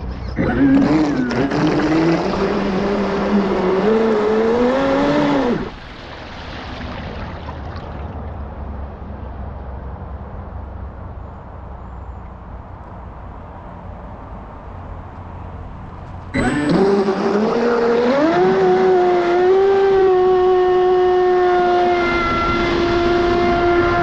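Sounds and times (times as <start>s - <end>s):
high-pitched motor whine: 0.0s - 5.8s, 16.3s - 24.0s.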